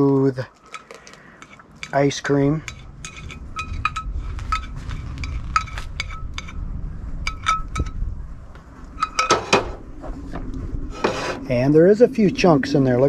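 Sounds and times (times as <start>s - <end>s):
scraping and clattering: 2.6s - 6.6s, 8.9s - 9.9s.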